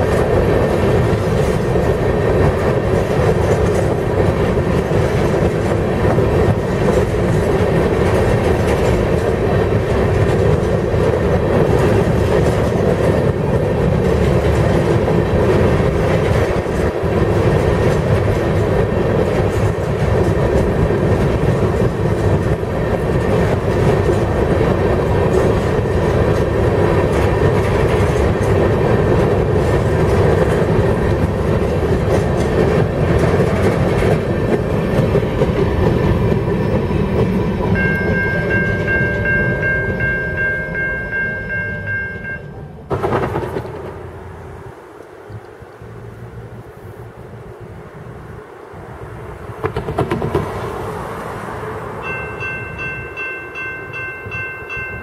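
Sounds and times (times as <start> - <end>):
wheels clacking over rail joints: 0.0 - 45.6, 49.4 - 55.0
freight train rolling past: 0.0 - 55.0.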